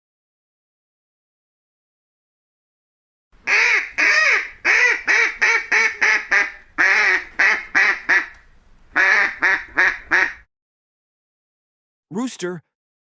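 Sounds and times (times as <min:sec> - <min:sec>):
duck quacking: 0:03.4 - 0:10.4.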